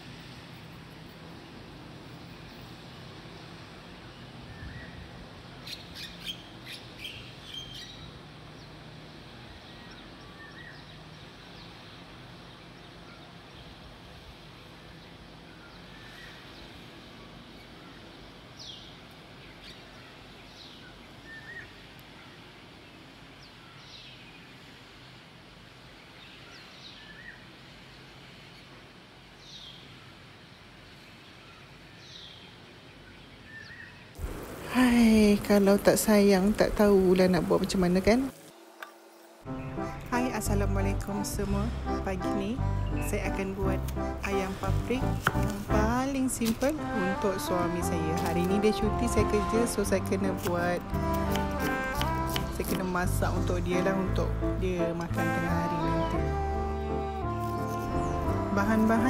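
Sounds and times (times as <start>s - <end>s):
low outdoor background: 0.0s - 59.0s
birds chirping: 39.1s - 52.0s, 52.8s - 59.0s.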